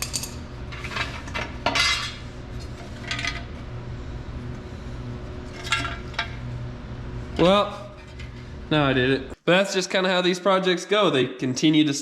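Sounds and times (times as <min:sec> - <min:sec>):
metal parts clinking and scraping: 0:00.0 - 0:02.2
steady low hum: 0:00.0 - 0:09.4.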